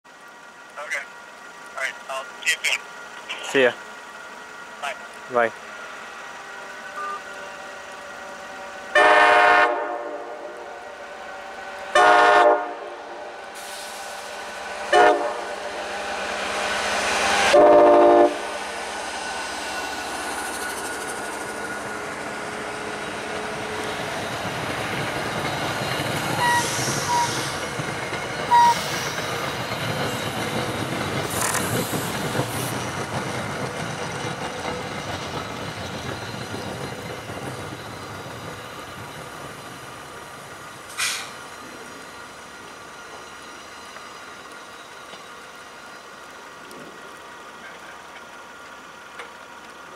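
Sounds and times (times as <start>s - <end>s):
train rumbling past: 0.1s - 49.9s
locomotive horn blasts: 8.9s - 10.7s, 11.9s - 13.0s, 14.9s - 15.5s, 17.5s - 18.5s, 26.4s - 27.2s.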